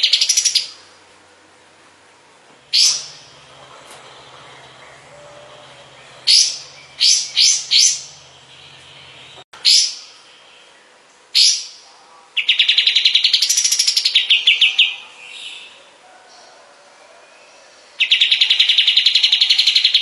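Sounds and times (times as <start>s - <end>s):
bird rattling trill: 2.7s - 8.9s
bird singing high notes: 2.7s - 10.8s.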